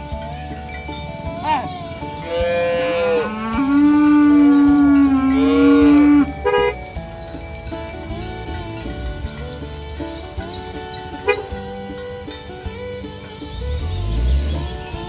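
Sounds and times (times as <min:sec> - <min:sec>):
cow mooing: 0:01.3 - 0:06.8.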